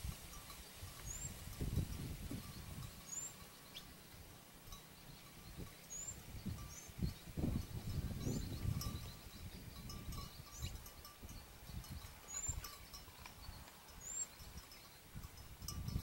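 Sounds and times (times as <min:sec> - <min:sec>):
light clinks: 0:04.7 - 0:16.0
high rising bird chirps: 0:05.0 - 0:07.3.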